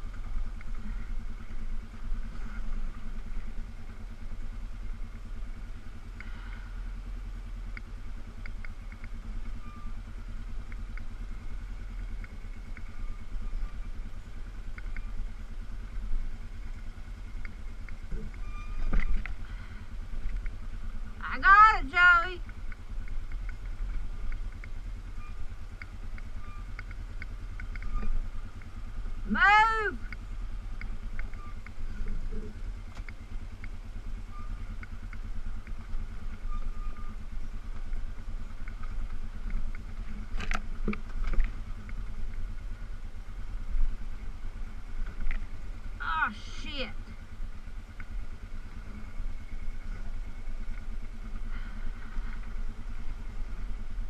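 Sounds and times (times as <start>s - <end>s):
atv engine rumbling: 0.0s - 54.0s
light clicks and rattles: 37.7s - 42.6s.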